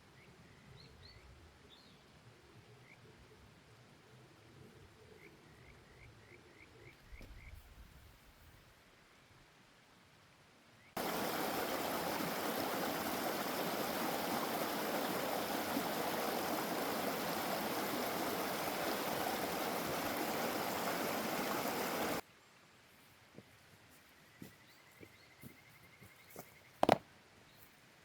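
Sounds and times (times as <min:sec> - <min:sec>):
stream water rushing: 0:11.0 - 0:22.2.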